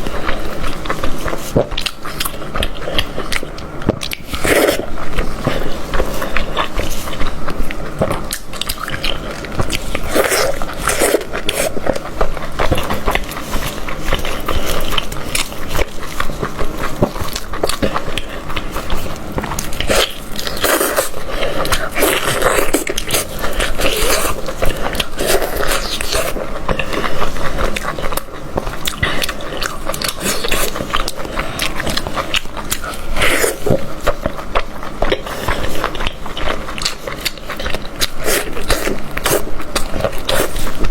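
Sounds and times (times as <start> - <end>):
close-up biting and chewing: 0.0 - 40.9.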